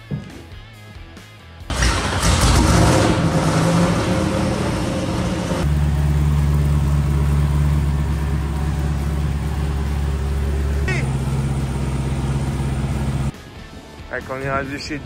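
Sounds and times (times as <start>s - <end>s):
car engine starting and idling: 1.7s - 13.4s.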